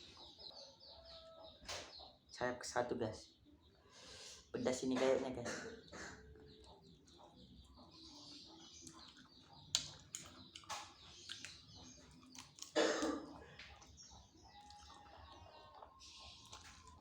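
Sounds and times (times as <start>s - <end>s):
wet chewing mouth sounds: 5.5s - 17.0s.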